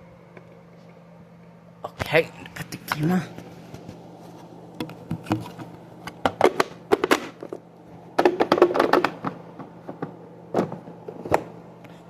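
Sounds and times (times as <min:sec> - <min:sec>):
hard objects clicking and knocking: 0:08.2 - 0:11.5.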